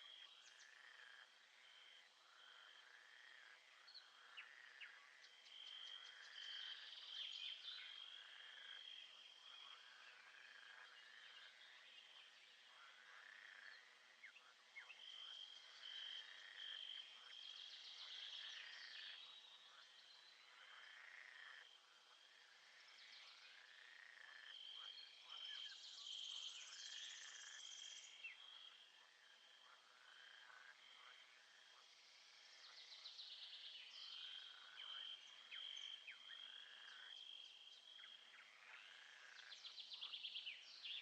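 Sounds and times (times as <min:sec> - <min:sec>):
frog and insect chorus: 0:00.0 - 0:41.0.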